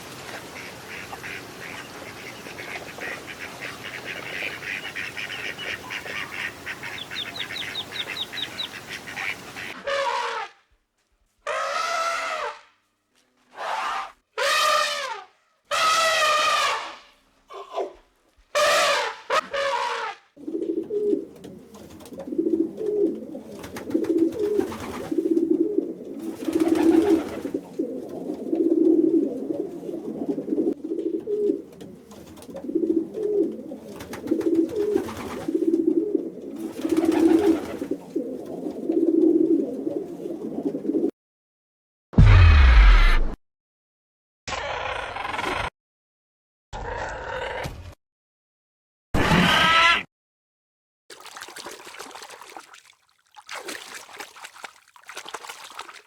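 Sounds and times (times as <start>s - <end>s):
pigeons cooing: 20.4s - 41.1s
sudden loud low noise: 42.2s - 43.4s.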